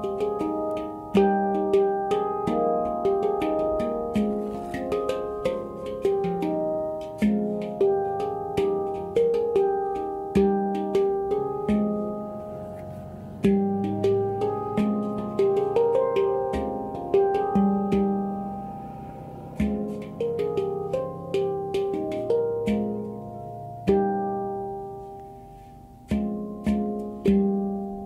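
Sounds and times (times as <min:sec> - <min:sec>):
handpan melody: 0:00.0 - 0:28.0.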